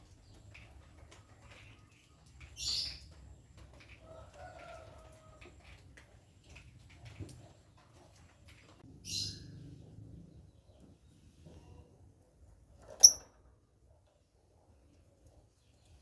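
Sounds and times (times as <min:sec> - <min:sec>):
lovebird chirping softly: 0:13.0 - 0:13.2.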